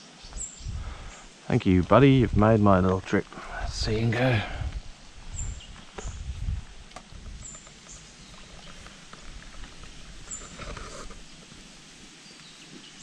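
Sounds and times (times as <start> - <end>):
small birds chirping: 0.0 - 13.0
soft rustling: 4.7 - 13.0.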